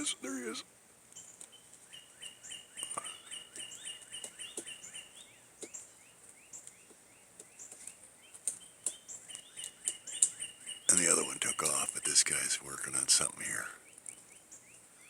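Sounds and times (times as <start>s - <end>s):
small bird high rising chirps: 1.2s - 6.9s
woodpecker pecking at wood: 1.2s - 12.4s.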